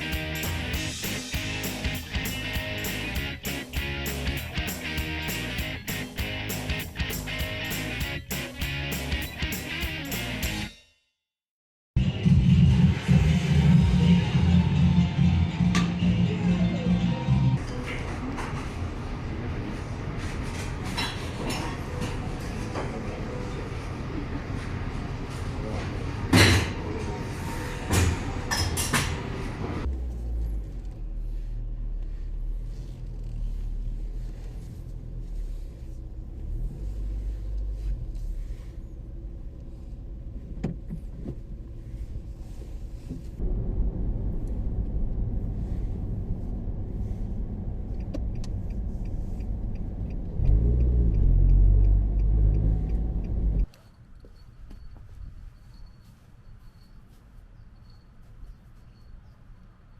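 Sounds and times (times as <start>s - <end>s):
car engine and road noise: 0.0s - 10.7s, 12.0s - 59.9s
evenly spaced ticks: 48.0s - 53.8s.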